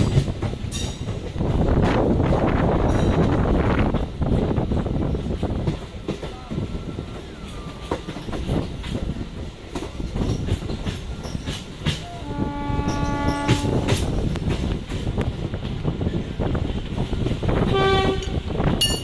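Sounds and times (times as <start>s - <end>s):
train rumbling over rails: 0.0s - 19.0s
wheels clicking over rail joints: 0.0s - 19.0s
train horn: 12.0s - 14.1s, 17.6s - 18.5s.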